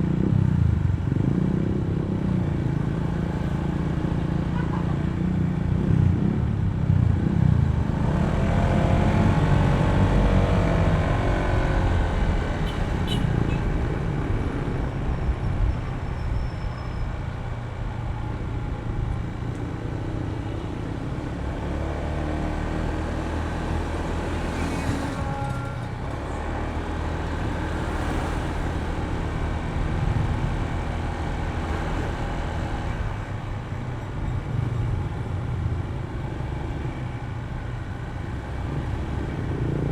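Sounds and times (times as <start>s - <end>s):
road traffic noise: 0.0s - 39.9s.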